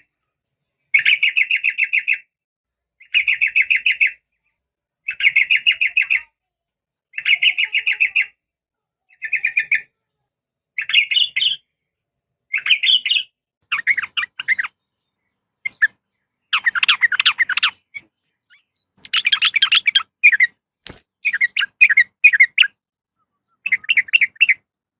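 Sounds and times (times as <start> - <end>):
bulbul chattering calls: 12.5 - 20.6, 21.2 - 24.6
sharp click: 20.8 - 21.1.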